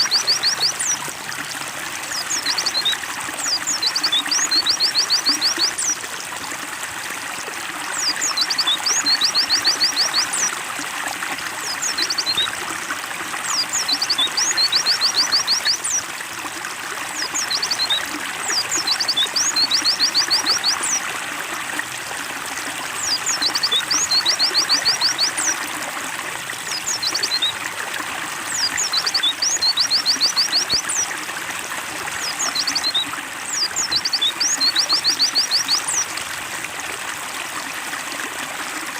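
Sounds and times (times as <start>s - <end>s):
water trickling and splashing: 0.0s - 38.9s
small bird chirping: 23.0s - 25.6s.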